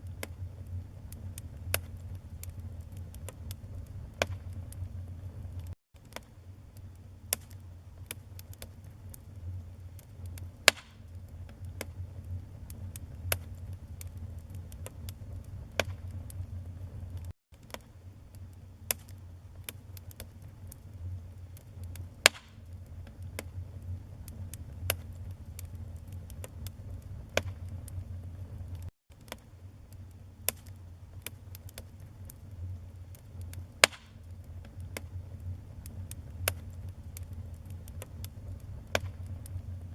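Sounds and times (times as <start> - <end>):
low fire roar: 0.0 - 17.3, 18.0 - 39.9
wood fire crackling and popping: 0.0 - 39.9.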